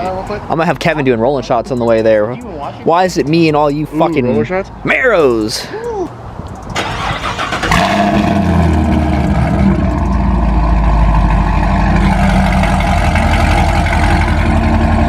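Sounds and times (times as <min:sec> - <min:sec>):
car engine starting and idling: 0:06.5 - 0:15.0.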